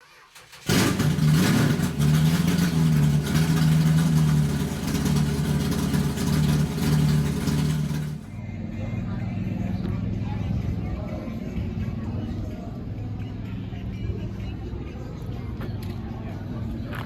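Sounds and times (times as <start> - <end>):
car engine droning: 0.4 - 11.0.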